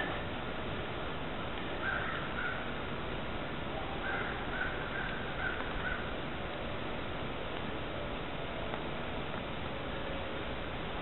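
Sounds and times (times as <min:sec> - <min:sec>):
steady hiss: 0:00.0 - 0:11.0
bird calling: 0:01.8 - 0:02.8, 0:03.8 - 0:06.2.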